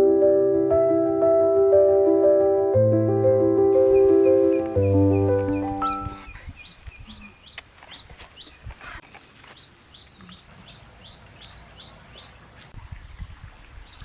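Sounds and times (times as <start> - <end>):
songbird chirping: 3.7 - 12.8, 13.8 - 14.0.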